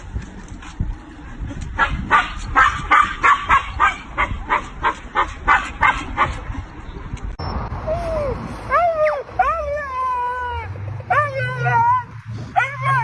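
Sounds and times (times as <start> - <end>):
dog barking: 1.8 - 6.4.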